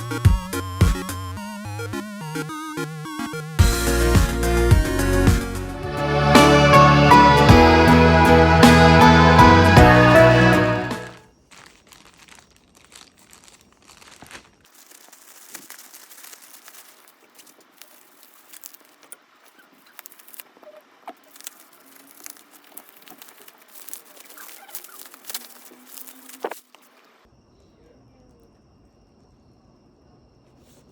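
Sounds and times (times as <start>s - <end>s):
crinkling plastic and cardboard: 11.3s - 27.2s
small clicks and rustles: 11.4s - 27.1s.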